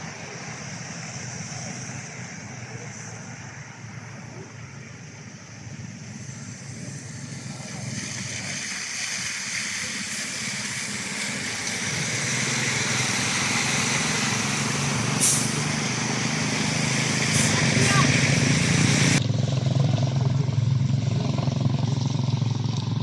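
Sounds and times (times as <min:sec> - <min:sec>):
vehicle engine approaching: 0:00.0 - 0:23.0.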